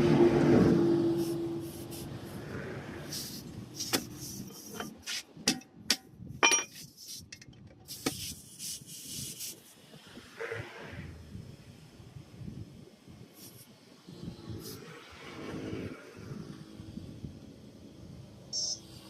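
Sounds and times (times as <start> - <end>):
hand tools knocking and clinking: 3.9 - 7.8.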